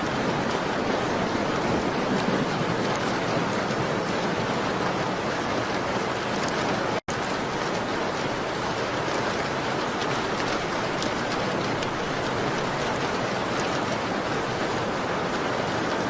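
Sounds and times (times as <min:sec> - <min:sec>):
rain on a window: 0:00.0 - 0:16.0
raindrops ticking: 0:00.1 - 0:04.4, 0:05.6 - 0:14.7.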